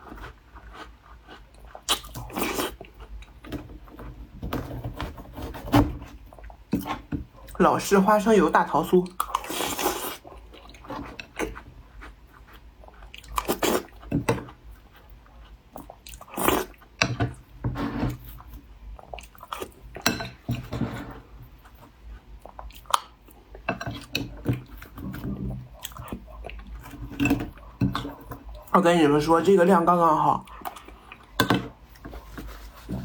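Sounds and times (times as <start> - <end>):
biting and chewing crumbly cookies: 0.0 - 7.6, 9.1 - 17.5.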